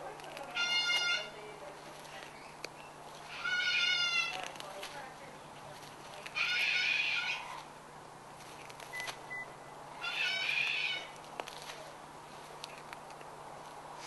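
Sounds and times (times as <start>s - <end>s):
macaw calling: 0.4s - 1.4s, 2.4s - 4.6s, 6.2s - 7.7s, 10.0s - 11.2s.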